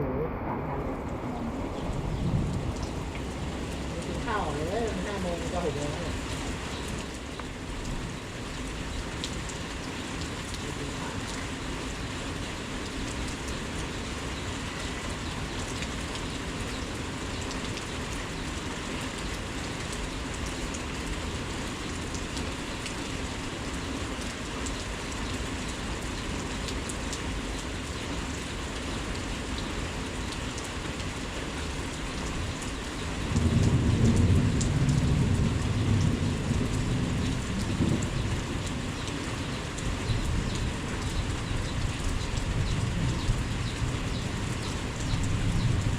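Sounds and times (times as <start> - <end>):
thunder rumble: 0.0 - 6.3, 33.3 - 39.0
heavy rain: 0.0 - 45.9.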